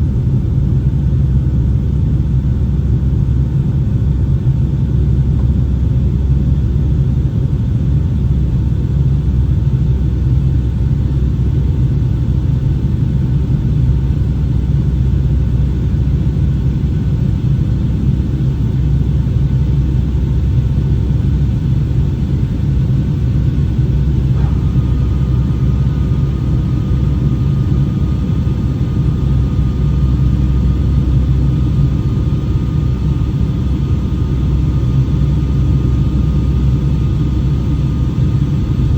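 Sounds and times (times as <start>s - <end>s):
airliner cabin engine roar: 0.0s - 38.9s
faint thin whine: 21.8s - 31.6s.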